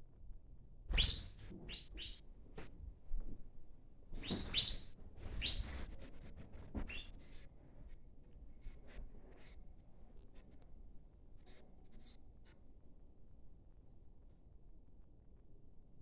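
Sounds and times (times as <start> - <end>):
canaries chirping: 0.9 - 2.2, 4.2 - 5.7.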